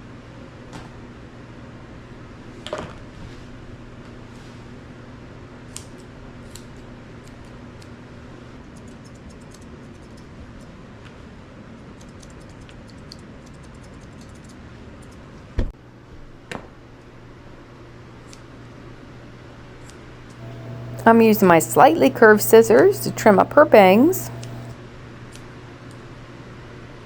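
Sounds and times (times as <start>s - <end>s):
low steady hum: 20.4s - 24.7s.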